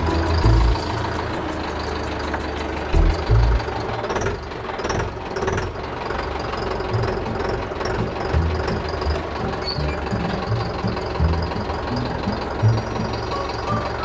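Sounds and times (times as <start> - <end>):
heavy vehicle engine running: 0.0 - 14.0.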